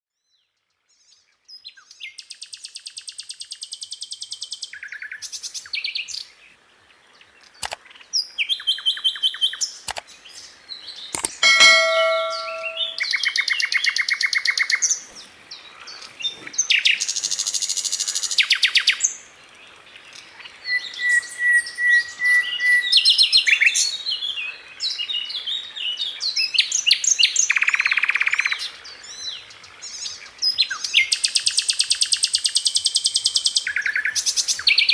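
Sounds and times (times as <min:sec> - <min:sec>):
bird singing fast trills: 0:11.4 - 0:13.0
ringing bell-like bird phrase: 0:11.4 - 0:13.0.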